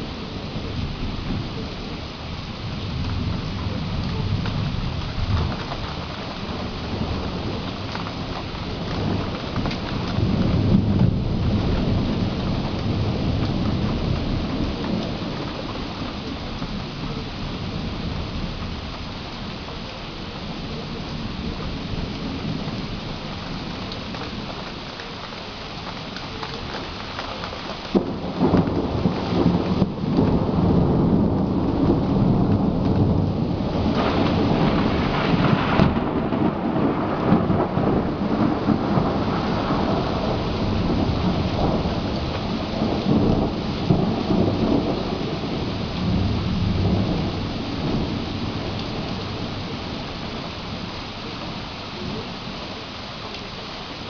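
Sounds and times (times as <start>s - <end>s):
rolling thunder: 0.0s - 24.9s, 26.0s - 52.8s
heavy rain: 0.0s - 54.0s
thunderclap cracks: 27.4s - 49.4s.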